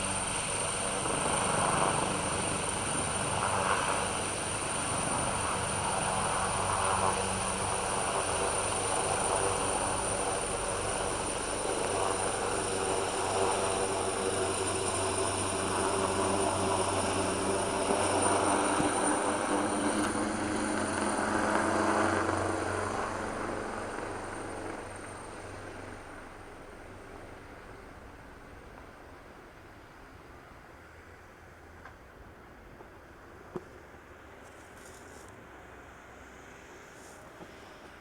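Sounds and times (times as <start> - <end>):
helicopter rotor and engine thrum: 0.0 - 27.8.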